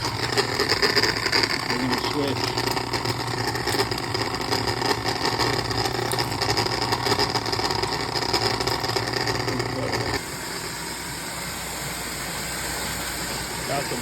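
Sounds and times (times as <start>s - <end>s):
cable rattling in drain: 0.0s - 10.2s
drain snake motor humming: 0.0s - 10.9s.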